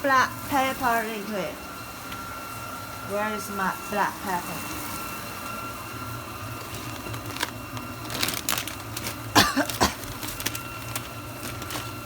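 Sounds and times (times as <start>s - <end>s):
person coughing: 9.3s - 10.1s.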